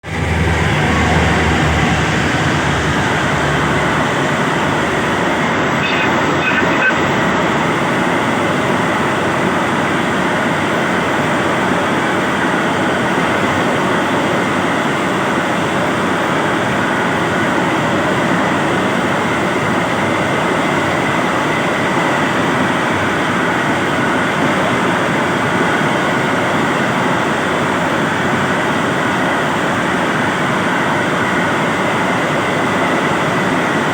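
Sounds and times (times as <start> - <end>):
freight train wheels on rails: 0.0 - 6.0.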